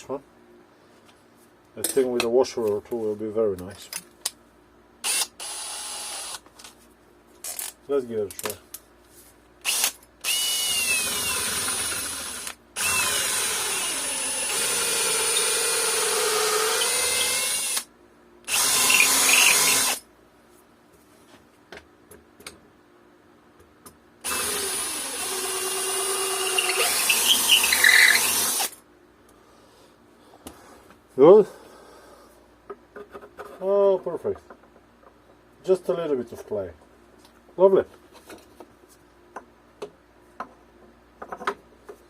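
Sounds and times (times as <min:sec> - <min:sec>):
electric drill boring wood: 0:05.0 - 0:06.4, 0:09.6 - 0:17.9, 0:18.5 - 0:20.0, 0:24.2 - 0:28.8.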